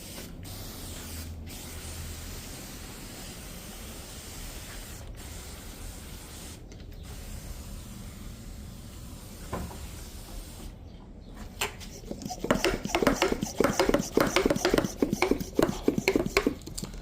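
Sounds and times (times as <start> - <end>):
compression sprayer hissing: 11.8 - 16.7.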